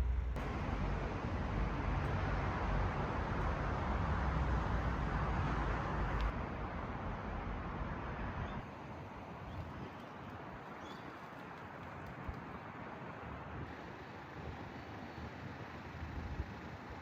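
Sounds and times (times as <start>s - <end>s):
heavy low rumble: 0.0s - 7.6s.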